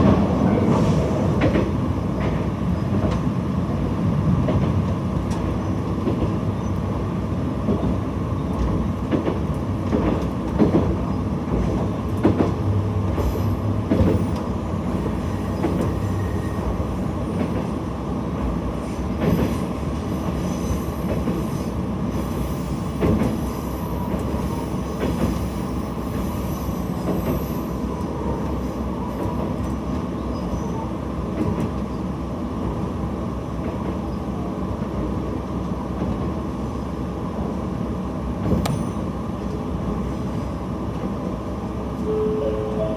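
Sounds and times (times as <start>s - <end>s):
railcar engine and wheels rumbling: 0.0s - 42.9s.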